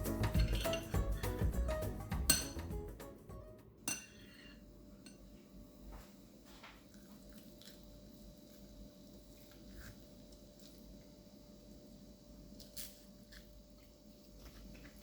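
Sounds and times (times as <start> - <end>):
cutlery and dishes clinking: 0.0 - 2.8, 3.9 - 5.2.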